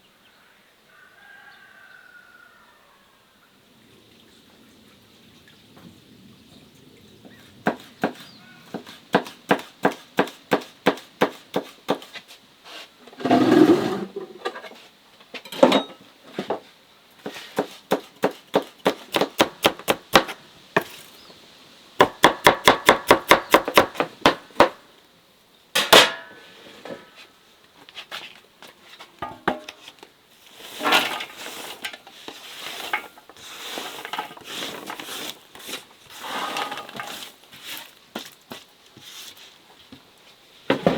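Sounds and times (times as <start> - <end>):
knife chopping vegetables on board: 7.7 - 12.1, 17.3 - 20.9, 22.0 - 24.8.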